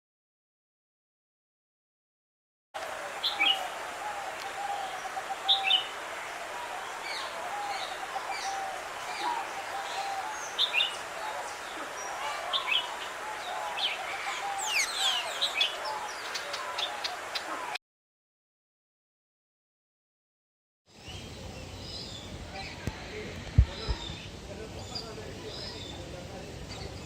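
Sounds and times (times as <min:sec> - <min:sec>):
birds chirping: 0:02.8 - 0:17.8
low warbling bird calls: 0:03.1 - 0:17.8.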